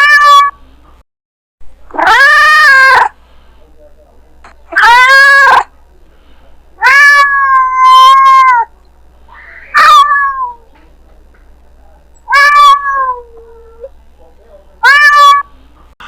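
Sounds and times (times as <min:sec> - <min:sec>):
cat meowing: 0:00.0 - 0:00.5, 0:01.9 - 0:03.1, 0:04.7 - 0:05.7, 0:06.8 - 0:08.7, 0:09.3 - 0:10.6, 0:12.3 - 0:13.9, 0:14.8 - 0:15.5.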